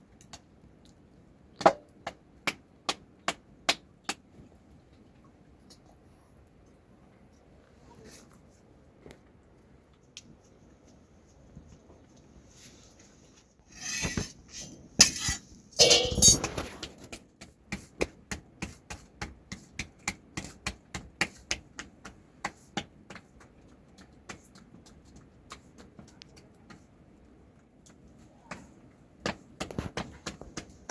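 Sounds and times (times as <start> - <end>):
metal utensils clattering: 13.7 - 16.8.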